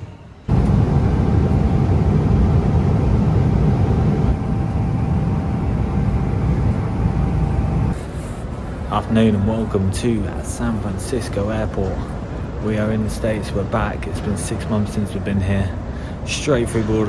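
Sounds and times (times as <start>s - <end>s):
faint steady whine: 0.0s - 16.6s
vehicle rumble: 0.5s - 8.0s.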